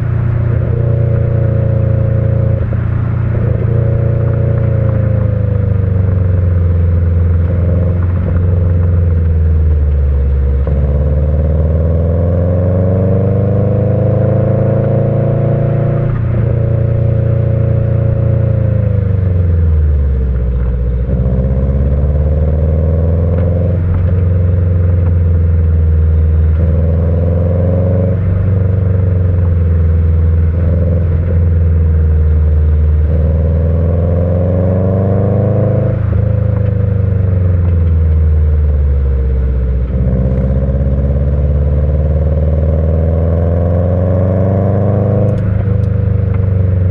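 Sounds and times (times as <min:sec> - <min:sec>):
car engine revving through gears: 0:00.0 - 0:19.5, 0:21.0 - 0:38.2, 0:39.5 - 0:46.9.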